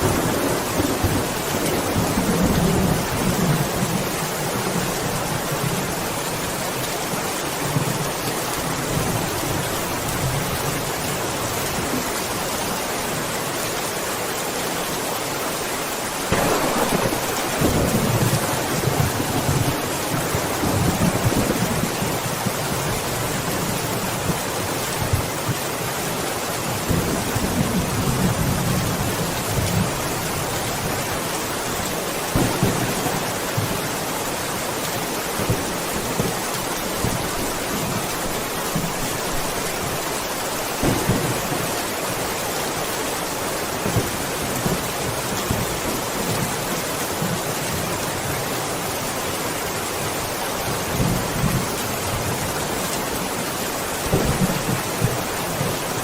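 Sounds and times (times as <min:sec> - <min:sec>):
thunder rumbling: 0:00.0 - 0:06.0, 0:16.3 - 0:23.5, 0:32.3 - 0:33.8, 0:40.6 - 0:42.4
steady rain hissing: 0:00.0 - 0:56.0.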